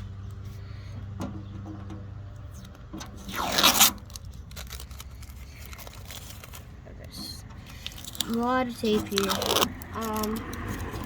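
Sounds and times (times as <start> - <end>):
tape ripping off: 2.6 - 6.7, 7.7 - 11.0.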